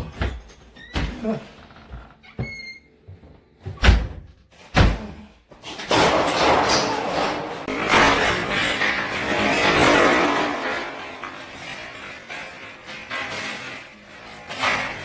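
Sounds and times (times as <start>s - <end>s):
loud scraping and rubbing: 5.7s - 15.0s.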